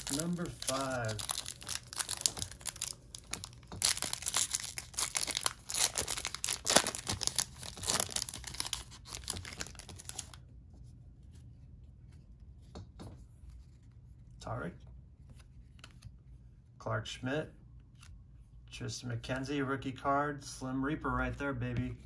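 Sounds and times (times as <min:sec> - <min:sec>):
wrapper tearing and crinkling: 0:00.0 - 0:10.4.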